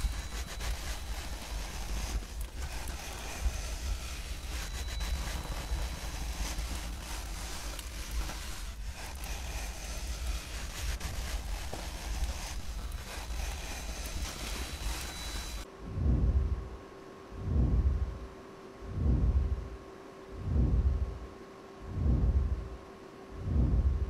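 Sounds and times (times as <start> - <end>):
faint crackles: 0.0 - 15.7
wind-like rustling hiss: 0.0 - 15.7
low rumble: 15.7 - 19.8, 20.4 - 22.8, 23.4 - 24.0.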